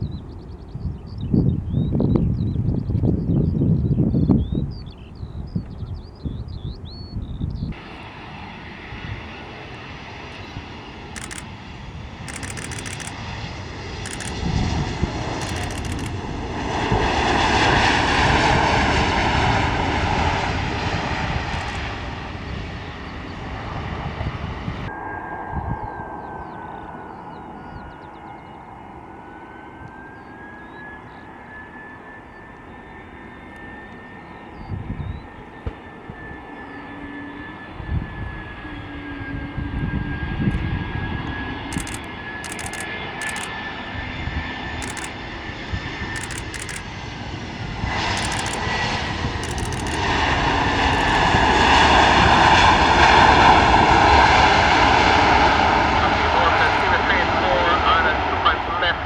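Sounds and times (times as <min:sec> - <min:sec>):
jet engine whine and roar: 0:00.0 - 0:59.0.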